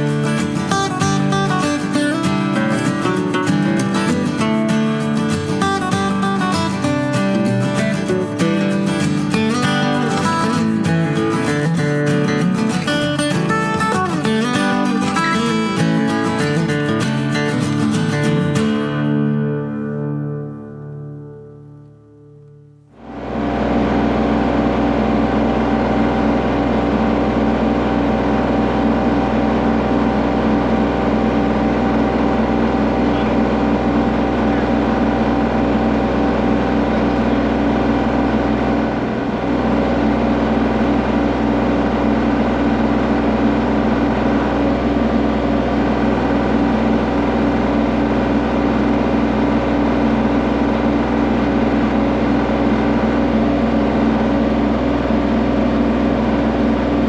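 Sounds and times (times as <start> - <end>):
tractor diesel engine running: 0.0 - 19.8, 22.8 - 57.0.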